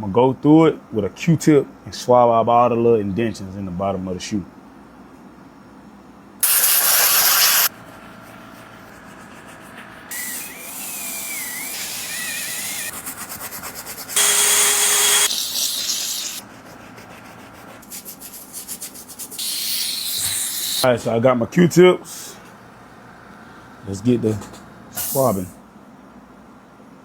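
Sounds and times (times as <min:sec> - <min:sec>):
loud hissing bursts: 0:06.4 - 0:07.7, 0:10.1 - 0:13.0, 0:13.9 - 0:16.4, 0:17.8 - 0:21.2, 0:24.9 - 0:25.6.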